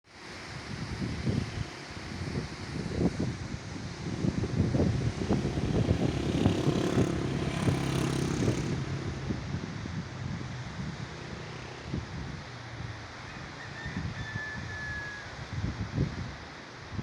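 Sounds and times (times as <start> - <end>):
wind buffeting microphone: 0.6 - 13.1
vehicle engine running: 0.9 - 13.2.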